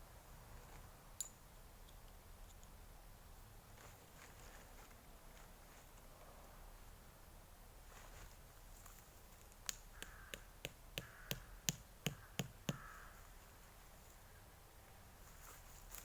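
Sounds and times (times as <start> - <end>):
faint outdoor hiss: 0.0 - 16.0
sharp taps: 9.7 - 12.9.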